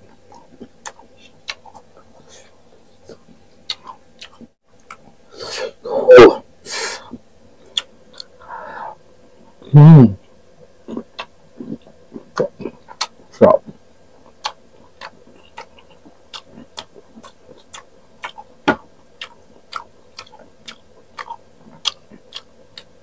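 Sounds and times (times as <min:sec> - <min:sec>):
chewing crisp mango: 0:02.8 - 0:05.1, 0:14.3 - 0:18.6, 0:19.2 - 0:23.0
wet mouth clicks: 0:19.2 - 0:22.9.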